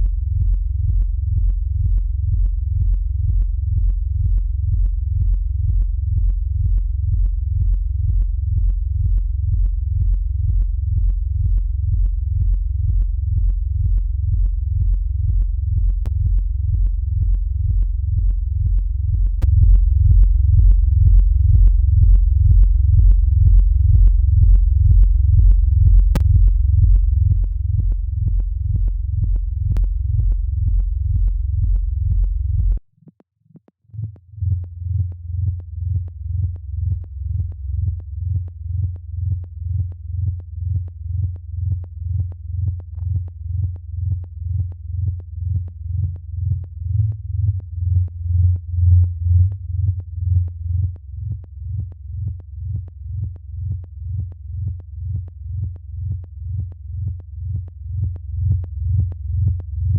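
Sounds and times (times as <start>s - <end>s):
synthesizer bass: 0.0s - 32.8s.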